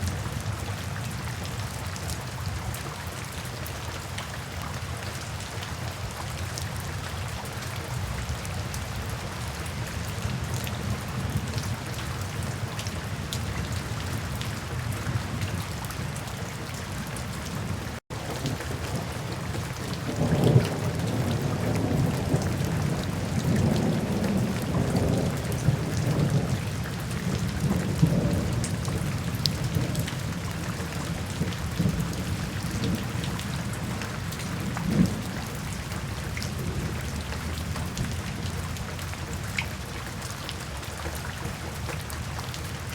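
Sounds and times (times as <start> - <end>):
steady rain falling: 0.0 - 42.9
thunder rumbling: 17.4 - 38.6.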